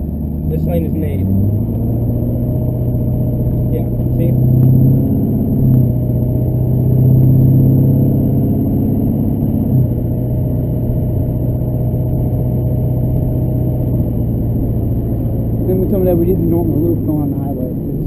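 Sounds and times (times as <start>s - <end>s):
diesel engine drone: 0.0s - 18.0s
road noise: 0.0s - 18.0s.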